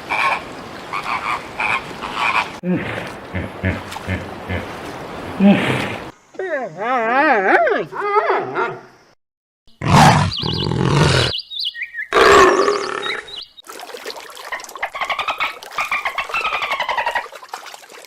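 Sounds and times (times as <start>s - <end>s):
animal roaring: 9.8s - 11.3s, 12.1s - 13.2s.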